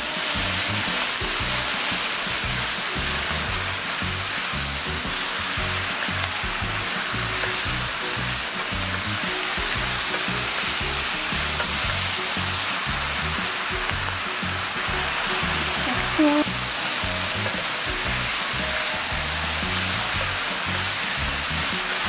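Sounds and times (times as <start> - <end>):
background music with bass line: 0.0 - 22.0
food sizzling in frying pan: 0.0 - 22.0
sauce bubbling: 0.3 - 22.0.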